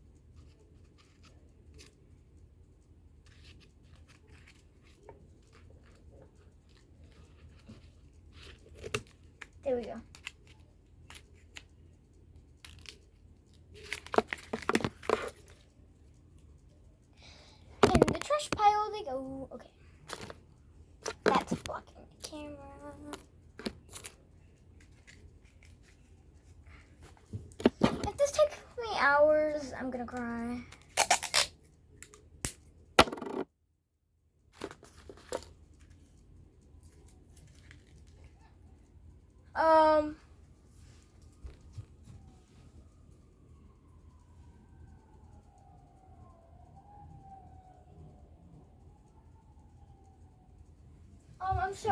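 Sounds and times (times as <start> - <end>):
faint room noise: 0.0 - 51.9.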